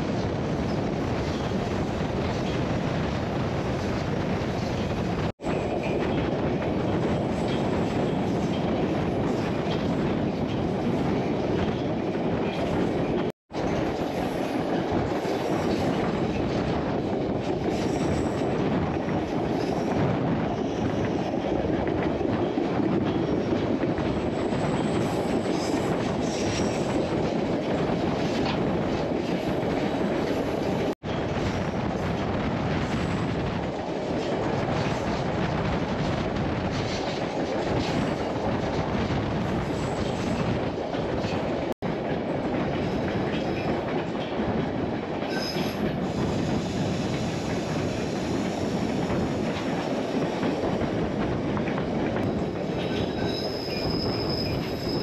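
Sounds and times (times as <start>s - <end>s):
train running along track: 0.0s - 55.0s.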